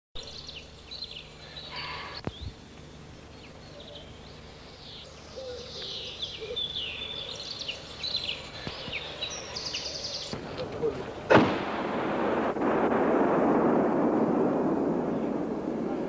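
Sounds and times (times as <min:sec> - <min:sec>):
birds chirping and singing: 0:00.2 - 0:11.4
faint low hum: 0:00.2 - 0:16.0.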